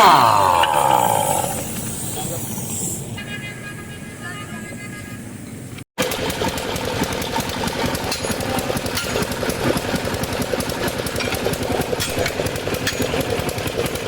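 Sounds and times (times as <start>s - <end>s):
rapid mechanical hammering: 6.0s - 14.0s.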